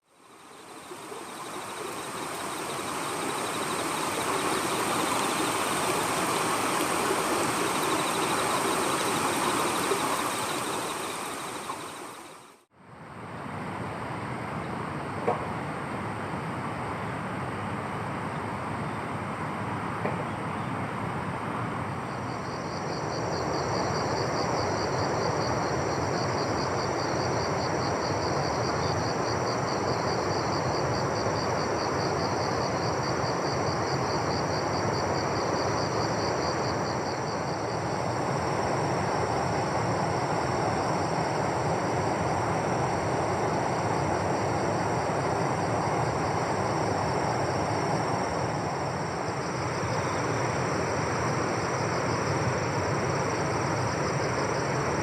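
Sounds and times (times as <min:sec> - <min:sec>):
insects trilling: 0:00.0 - 0:12.6, 0:22.1 - 0:55.0
pulsing high insect chirp: 0:00.0 - 0:12.6, 0:22.1 - 0:55.0
background noise rush: 0:00.1 - 0:20.0.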